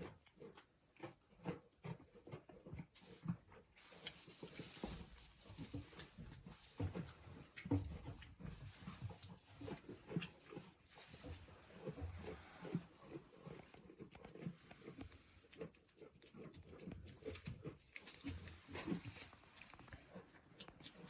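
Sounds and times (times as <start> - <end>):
goats moving and snuffling: 0.4 - 21.0.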